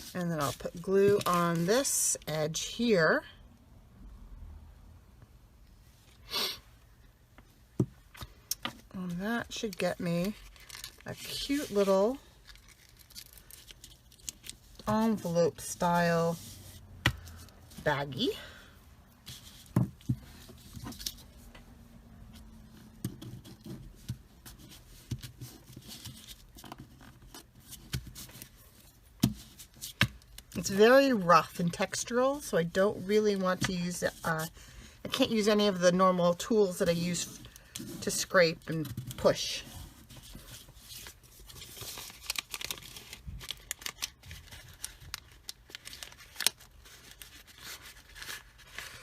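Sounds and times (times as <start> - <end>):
paper crinkling and rustling: 9.0 - 17.8, 37.2 - 49.0
paper rustling: 38.8 - 49.0.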